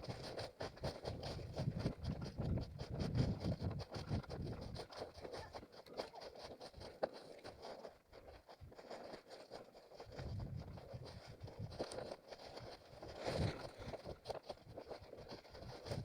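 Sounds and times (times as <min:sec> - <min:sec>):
undergrowth rustling and scraping: 0:03.1 - 0:16.0
footsteps in forest: 0:03.5 - 0:16.0.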